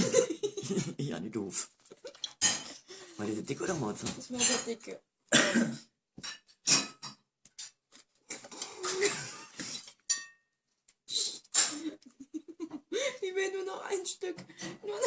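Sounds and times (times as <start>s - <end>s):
cutlery and plates clattering: 2.0s - 2.9s, 4.0s - 4.9s, 6.2s - 10.5s.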